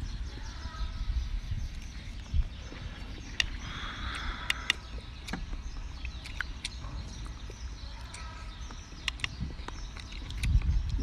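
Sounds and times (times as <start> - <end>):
person chewing food: 3.0 - 11.0
wet mouth clicks and smacks: 3.4 - 8.2, 9.0 - 11.0.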